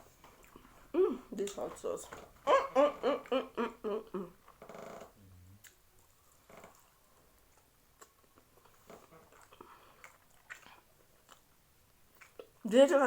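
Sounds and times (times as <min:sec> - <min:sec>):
person chewing food: 0:00.1 - 0:01.6, 0:05.5 - 0:12.6
person humming: 0:00.9 - 0:01.3.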